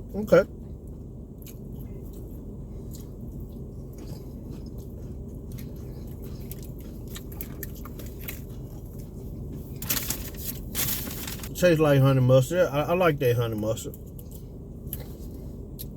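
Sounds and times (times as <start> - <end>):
steady low hum: 0.0 - 15.9
person chewing crunchy food: 0.8 - 11.5, 14.0 - 15.9.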